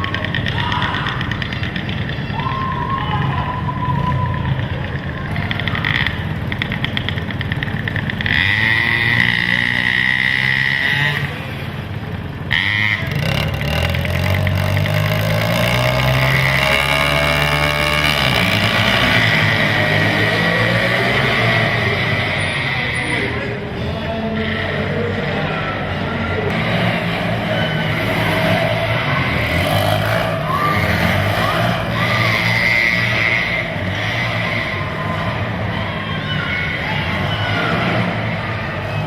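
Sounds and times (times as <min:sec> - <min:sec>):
quad engines revving: 0:00.0 - 0:39.0.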